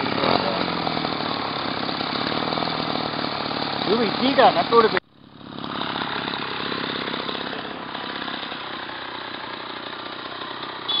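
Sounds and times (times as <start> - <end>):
small engine puttering: 0.0 - 11.0.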